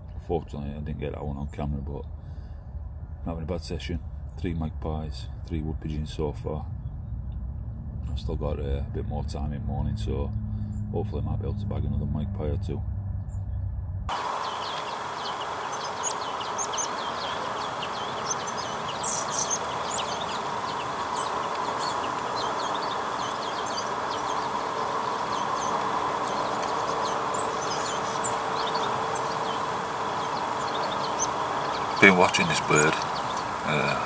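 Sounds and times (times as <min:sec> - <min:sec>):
faint constant tones: 0:00.0 - 0:34.0
small birds chirping: 0:04.5 - 0:34.0
steady hiss: 0:14.1 - 0:34.0.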